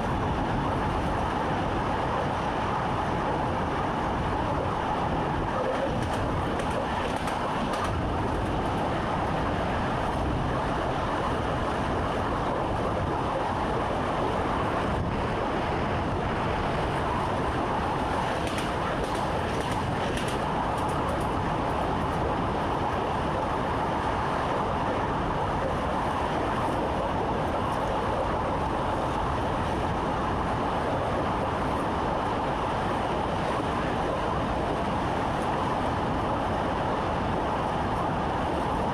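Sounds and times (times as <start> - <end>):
train wheels on rails: 0.0 - 24.7.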